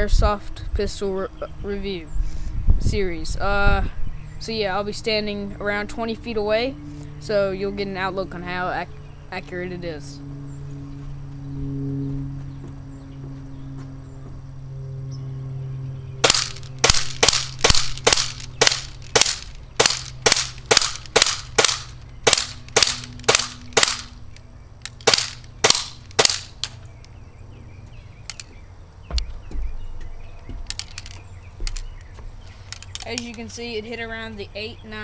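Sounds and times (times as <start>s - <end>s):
airsoft pistol shots: 16.2s - 24.2s, 24.9s - 26.8s.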